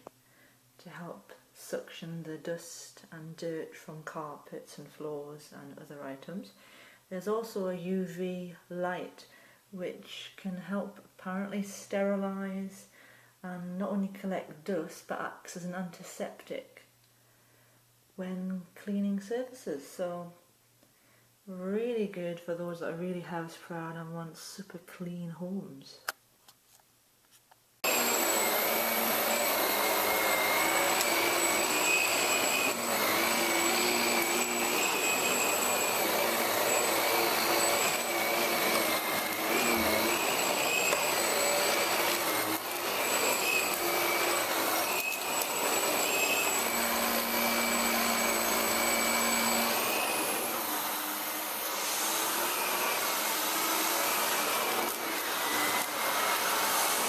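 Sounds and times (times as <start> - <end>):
vacuum cleaner running: 27.8 - 57.0.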